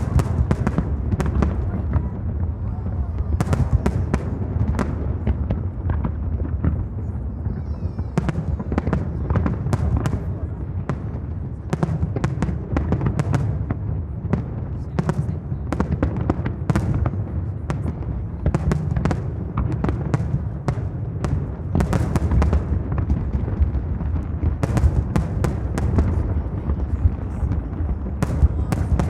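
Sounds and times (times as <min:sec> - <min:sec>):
deep rumble of firework bursts: 0:00.0 - 0:29.0
firework bangs and crackles: 0:00.0 - 0:29.0.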